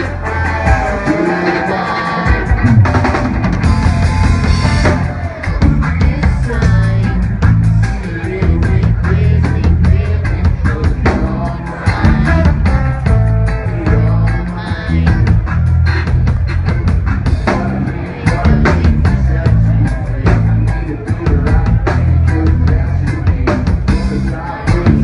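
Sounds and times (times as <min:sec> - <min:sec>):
person singing: 0:00.0 - 0:04.0, 0:04.8 - 0:15.5, 0:17.4 - 0:25.0
drum kit beat: 0:00.0 - 0:25.0
rock band music: 0:00.0 - 0:25.0.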